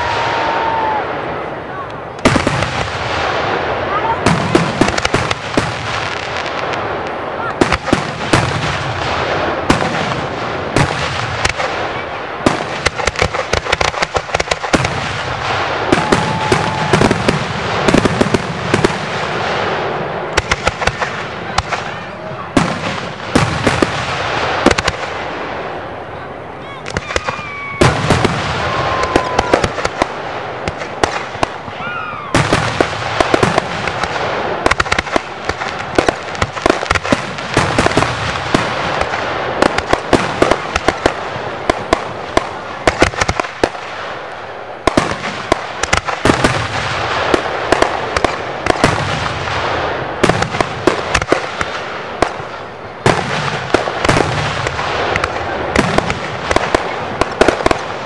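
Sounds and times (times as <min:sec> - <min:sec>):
fireworks crackling and banging: 0:00.0 - 0:58.0
firework whistles: 0:15.1 - 0:18.1, 0:26.8 - 0:34.9.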